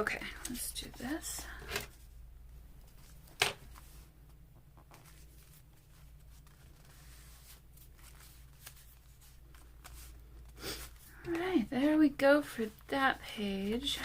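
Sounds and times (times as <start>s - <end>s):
low steady hum: 0.0s - 14.0s
paper rustling: 4.8s - 11.5s.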